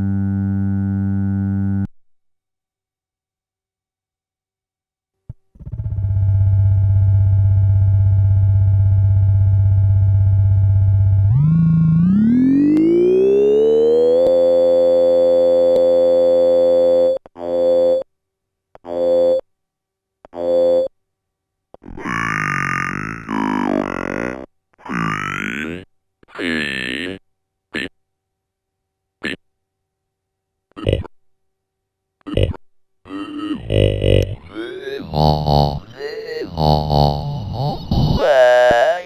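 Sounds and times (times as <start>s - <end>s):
dense wavering synth tone: 5.7s - 16.9s
buzzy synthesizer drone: 5.7s - 17.8s.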